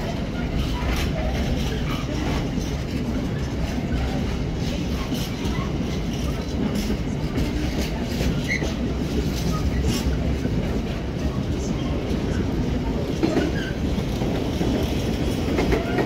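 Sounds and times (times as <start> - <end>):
freight train rumbling past: 0.0 - 16.0
wheels clacking over rail joints: 11.6 - 16.0.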